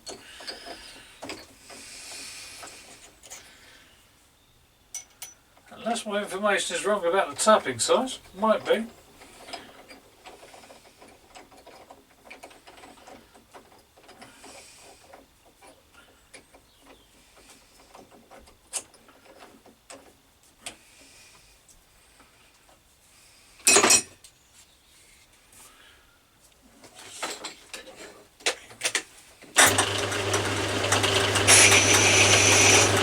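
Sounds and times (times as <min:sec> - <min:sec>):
metal lathe running: 0:29.6 - 0:33.0.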